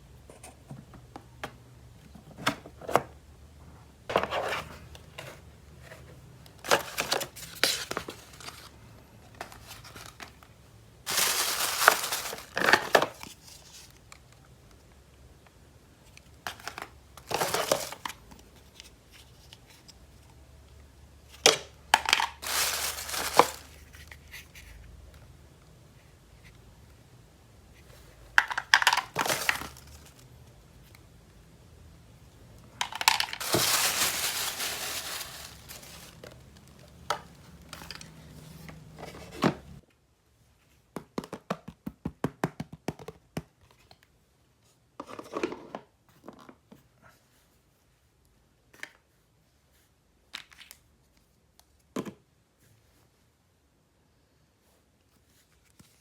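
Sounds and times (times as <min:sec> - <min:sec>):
packaging tearing and crinkling: 0:11.1 - 0:13.2, 0:22.2 - 0:23.9, 0:33.0 - 0:36.4.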